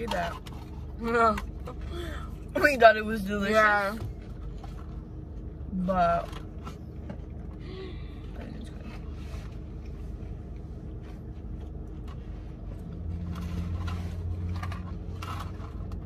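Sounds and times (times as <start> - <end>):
chewing and food handling: 0.0 - 1.9, 8.2 - 16.0
low car interior hum: 0.0 - 16.0.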